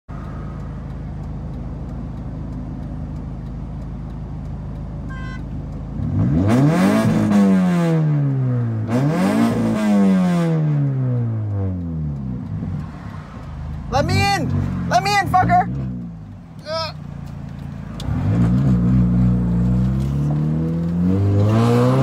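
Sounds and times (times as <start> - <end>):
car engine idling and revving: 0.1 - 22.0
short beep: 5.1 - 5.5.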